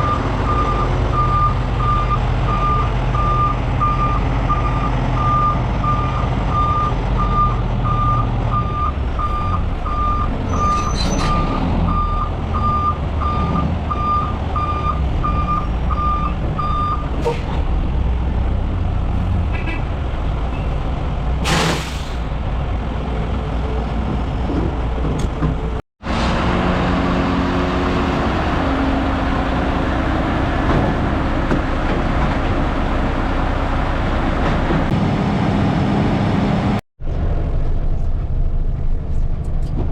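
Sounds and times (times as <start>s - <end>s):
diesel truck engine running: 0.0s - 39.9s
short sharp air hiss: 21.4s - 22.3s.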